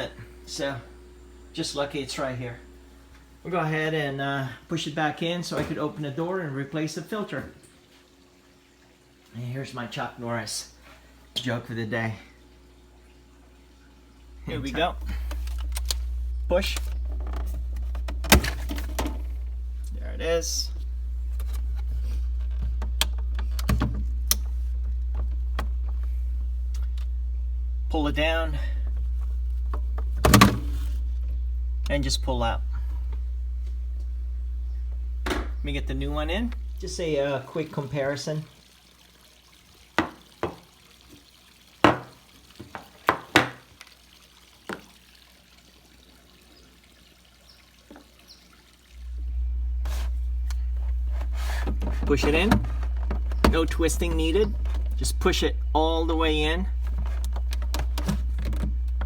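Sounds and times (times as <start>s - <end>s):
steady low hum: 0.0s - 38.9s, 48.8s - 59.0s.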